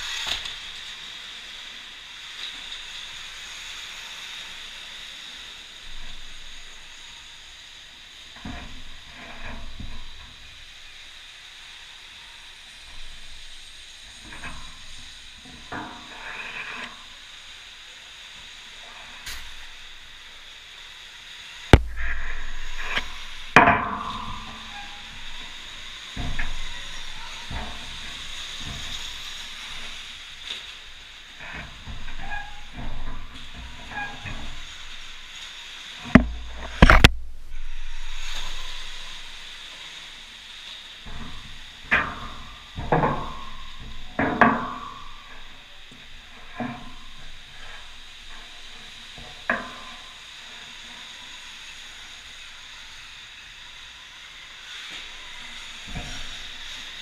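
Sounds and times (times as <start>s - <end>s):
electric dirt bike riding hiss: 0.0s - 57.0s
hard thud: 21.8s - 22.9s
sharp thumps: 21.8s - 24.9s.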